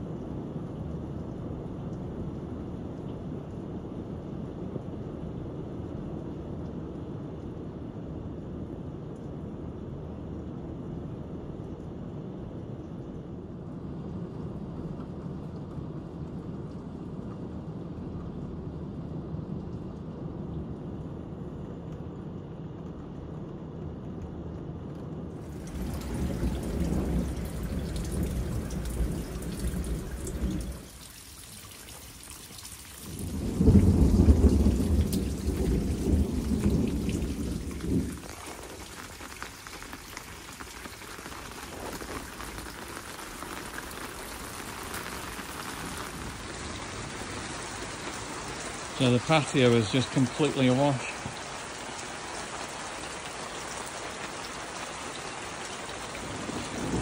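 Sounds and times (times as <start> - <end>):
heavy rain falling: 24.8 - 57.0
thunder rumbling: 25.4 - 31.1, 33.0 - 57.0.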